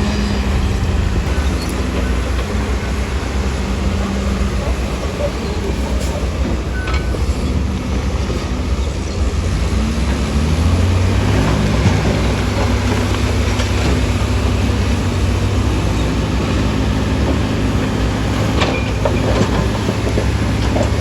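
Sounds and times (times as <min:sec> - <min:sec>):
heavy diesel engine rumbling: 0:00.0 - 0:21.0.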